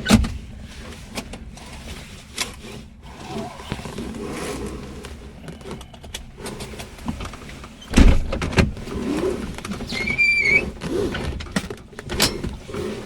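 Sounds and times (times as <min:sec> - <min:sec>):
clicks and clunks of seat fittings: 0:00.0 - 0:02.8, 0:05.0 - 0:13.0
short high squeak: 0:09.9 - 0:10.7.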